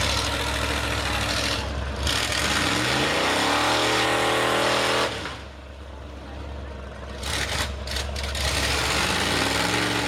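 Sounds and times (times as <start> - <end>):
truck engine revving hard: 0.0 - 5.5, 7.2 - 10.0.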